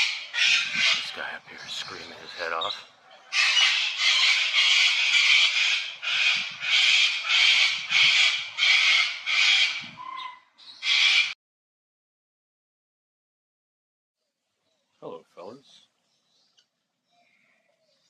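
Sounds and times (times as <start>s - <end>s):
guinea fowl screaming: 0.0s - 1.1s, 3.3s - 11.4s.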